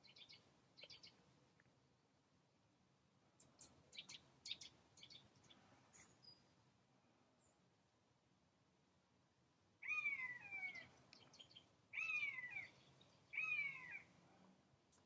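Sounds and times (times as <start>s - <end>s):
bird drawn-out falling calls: 9.8s - 14.1s.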